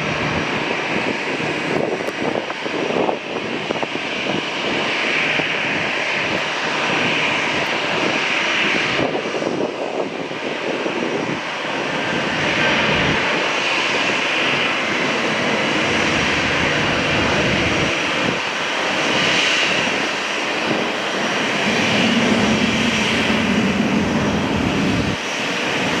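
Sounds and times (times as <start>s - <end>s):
jet engine rush: 0.0s - 26.0s.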